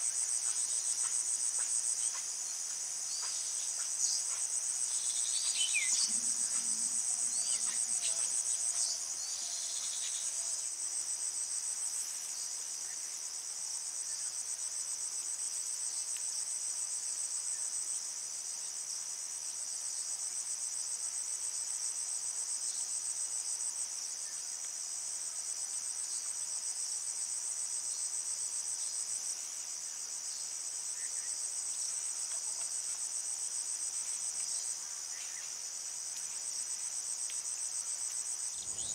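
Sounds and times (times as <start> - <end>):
insects trilling: 0.0 - 11.2, 27.5 - 38.9
faint bird chirps: 38.5 - 38.9.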